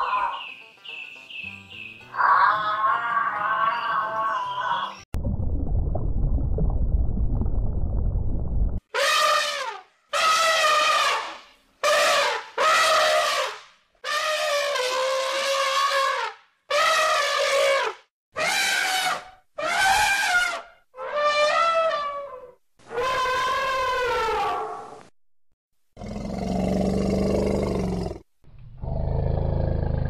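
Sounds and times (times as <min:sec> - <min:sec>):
elephants trumpeting: 0:10.2 - 0:24.8.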